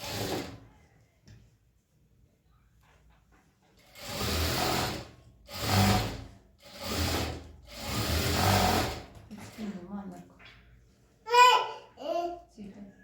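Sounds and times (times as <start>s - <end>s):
sewing machine running: 0.0s - 0.6s, 3.8s - 9.2s.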